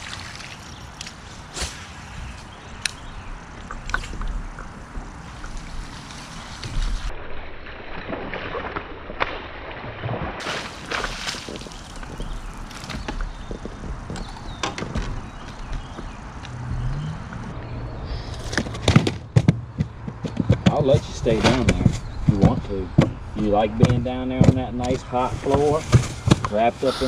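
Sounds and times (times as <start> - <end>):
wind and water rushing: 0.0 - 15.5
knocks and clunks on deck: 18.8 - 23.2, 23.8 - 26.5.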